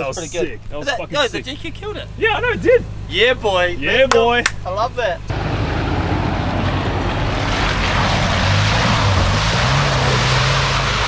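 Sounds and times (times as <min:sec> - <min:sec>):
off-road engine running under load: 0:00.0 - 0:11.0
steady rushing noise: 0:05.3 - 0:11.0.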